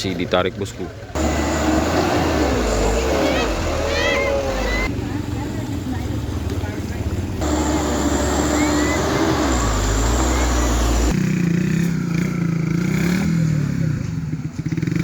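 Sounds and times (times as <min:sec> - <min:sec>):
deep engine rumble: 0:00.0 - 0:11.2
engine with wavering pitch: 0:01.1 - 0:11.9.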